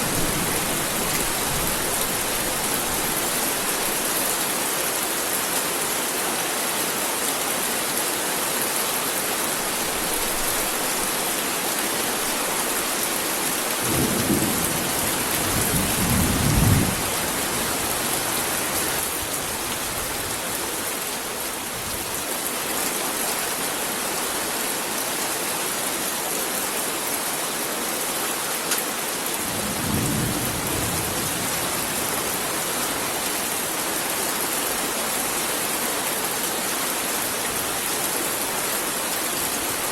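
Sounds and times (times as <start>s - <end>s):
heavy rain falling: 0.0s - 39.9s
low rolls of thunder: 13.8s - 17.7s, 29.5s - 32.0s.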